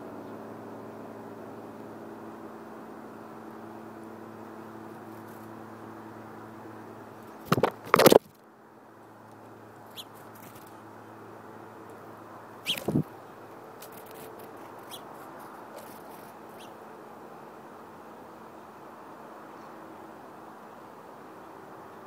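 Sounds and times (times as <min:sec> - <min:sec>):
high bird chirps: 0:09.9 - 0:10.2, 0:12.6 - 0:13.1, 0:14.8 - 0:15.2, 0:16.5 - 0:16.8.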